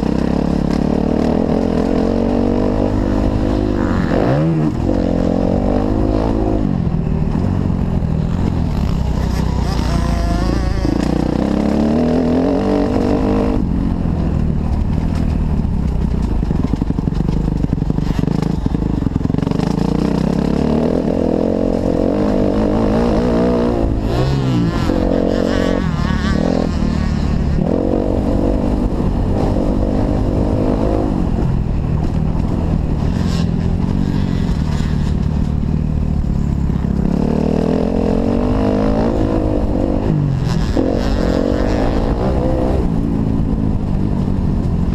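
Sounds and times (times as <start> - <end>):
motocross bike engine revving: 0.0 - 13.8, 17.6 - 31.4, 32.8 - 43.6.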